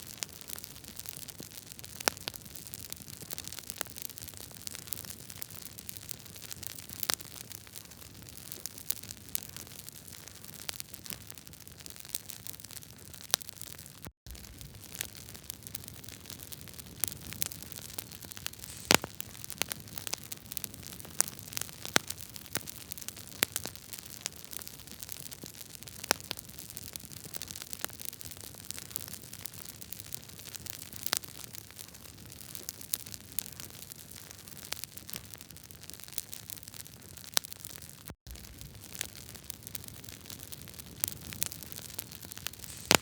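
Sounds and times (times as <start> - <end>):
fire crackling and popping: 0.0 - 43.0
fire hissing: 17.8 - 19.6, 42.6 - 43.0.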